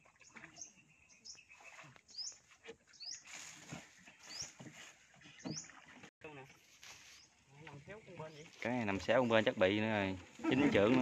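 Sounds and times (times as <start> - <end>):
bird chirping: 0.2 - 3.4, 4.1 - 5.8.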